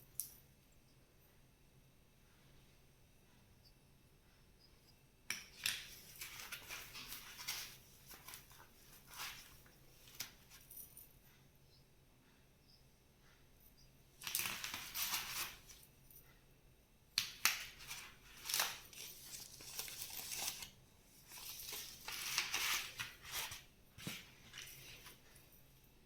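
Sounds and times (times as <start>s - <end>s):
crinkling and crushing handling noise: 5.6s - 10.8s, 17.3s - 25.6s.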